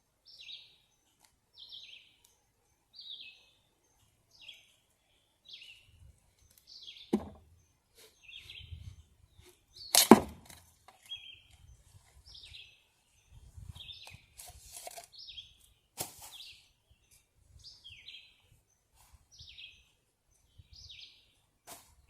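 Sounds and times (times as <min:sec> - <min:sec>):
bird chirping: 0:00.2 - 0:10.2, 0:11.0 - 0:14.4, 0:15.0 - 0:21.5
sharp knocks: 0:07.1 - 0:07.4, 0:10.0 - 0:10.6.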